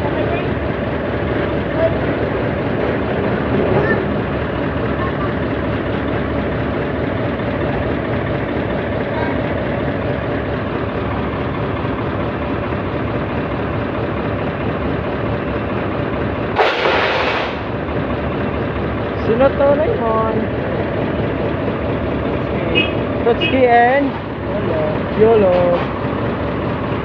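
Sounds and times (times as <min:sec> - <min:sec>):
diesel engine running: 0:00.0 - 0:27.0
hissing burst: 0:16.6 - 0:17.7.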